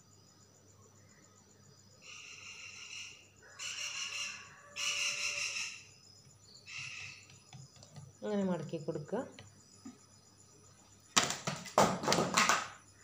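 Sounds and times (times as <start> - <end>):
bird high even calls: 6.6 - 7.3.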